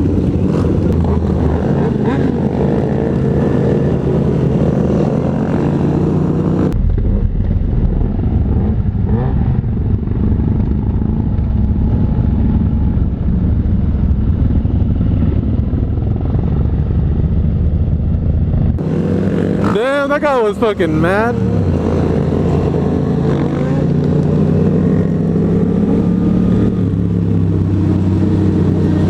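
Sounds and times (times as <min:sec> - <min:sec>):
wind rush on microphone: 0:00.0 - 0:19.6
motorcycle engine running: 0:00.0 - 0:29.0.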